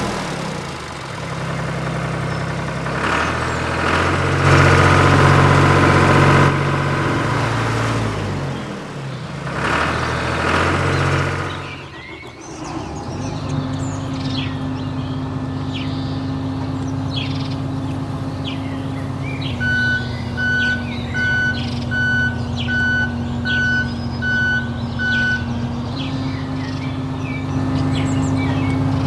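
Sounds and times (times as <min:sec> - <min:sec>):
birds chirping: 0:00.0 - 0:29.0
truck engine running: 0:00.0 - 0:29.0
reversing alarm beeping: 0:19.4 - 0:27.5.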